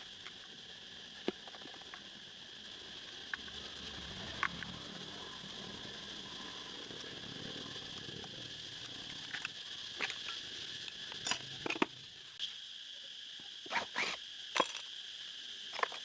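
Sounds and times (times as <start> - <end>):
high insect drone: 0.0 - 16.0
metal clicks and clinks: 15.7 - 16.0.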